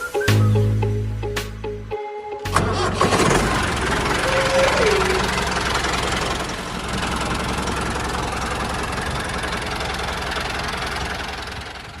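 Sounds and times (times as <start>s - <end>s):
tractor engine idling: 2.5s - 12.0s.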